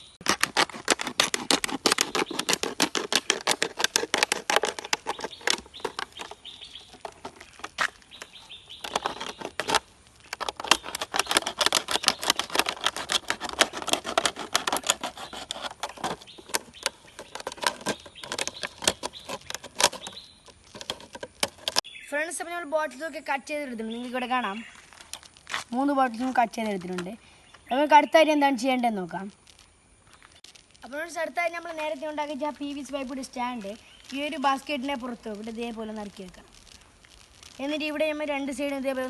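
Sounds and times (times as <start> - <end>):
plastic bottles being cut: 0.2 - 21.8.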